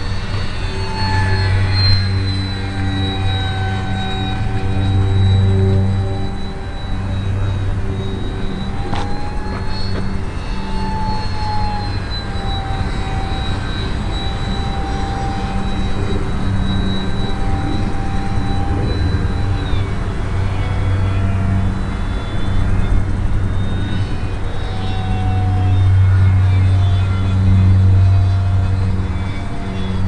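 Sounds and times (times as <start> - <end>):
rushing wind noise: 0.0 - 30.0
small electric motor whine: 0.0 - 30.0
steady low hum: 0.0 - 30.0.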